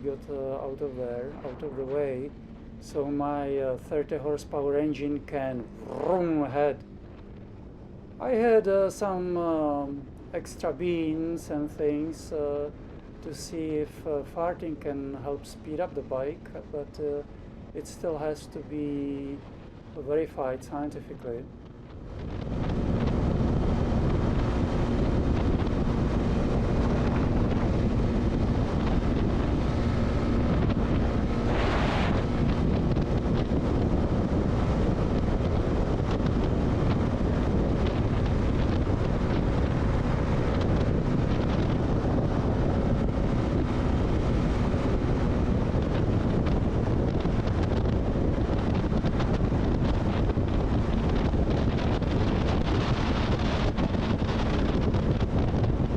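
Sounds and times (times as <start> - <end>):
heavy wind on microphone: 0.0 - 55.9
motorcycle engine steady tone: 11.3 - 55.9.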